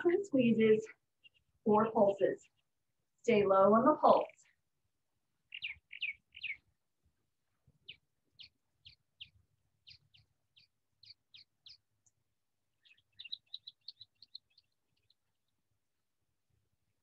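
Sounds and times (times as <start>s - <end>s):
songbird chirping: 0.0s - 17.0s.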